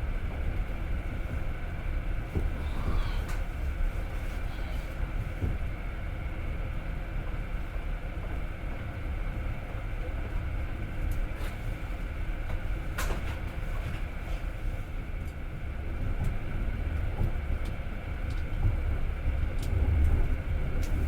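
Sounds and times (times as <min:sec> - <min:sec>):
train wheels rumbling on track: 0:00.0 - 0:21.0
rail clicks: 0:12.5 - 0:14.2.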